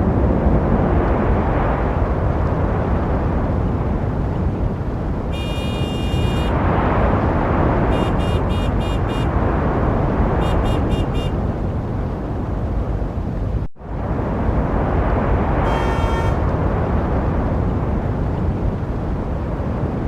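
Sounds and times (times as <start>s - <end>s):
street traffic: 3.5s - 20.0s
high-pitched car horn: 5.3s - 6.6s, 7.9s - 9.4s, 10.4s - 11.4s, 15.6s - 16.4s.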